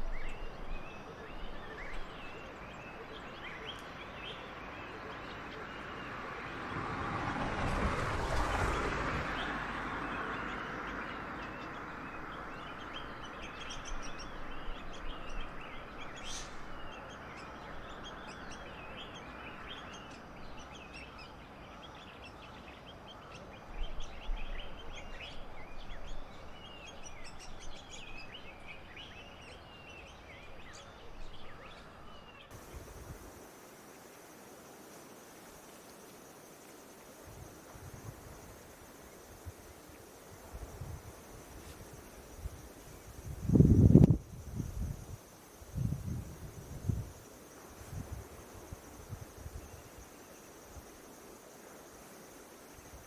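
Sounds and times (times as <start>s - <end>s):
many birds chirping: 0.0s - 6.2s
steady rushing hiss: 32.5s - 53.0s.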